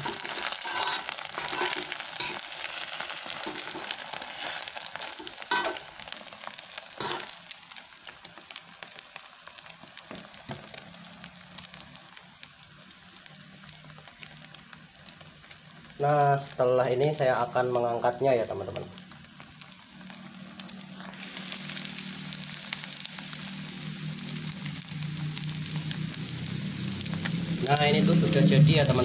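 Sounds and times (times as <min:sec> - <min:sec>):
metal spatula scraping wok: 0:00.0 - 0:06.1, 0:07.0 - 0:07.4
omelette sizzling in oil: 0:00.0 - 0:29.0.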